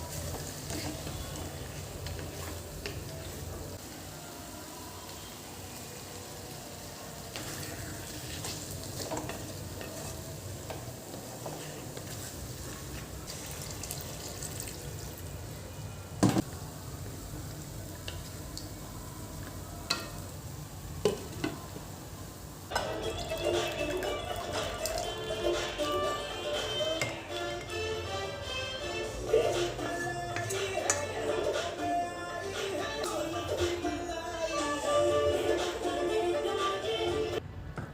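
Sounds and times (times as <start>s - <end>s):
utensil stirring food: 0.0s - 3.9s, 5.0s - 15.5s, 22.7s - 32.0s
food sizzling in a pan: 0.0s - 15.6s, 16.4s - 28.2s.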